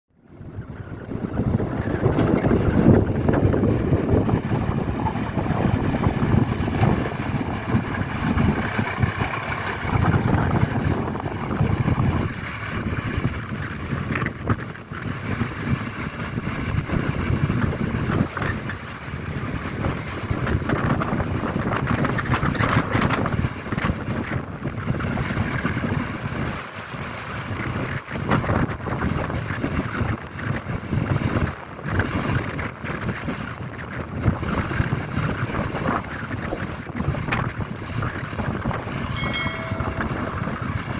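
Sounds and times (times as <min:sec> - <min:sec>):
heavy machinery engine rumble: 0:00.2 - 0:23.4, 0:36.7 - 0:40.9
wind buffeting microphone: 0:00.2 - 0:40.9.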